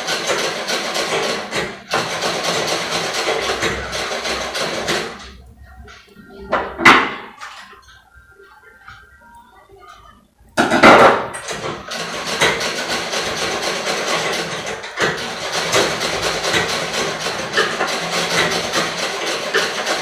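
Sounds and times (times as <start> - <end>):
treadle sewing machine clatter: 0.0 - 5.3, 10.9 - 20.0.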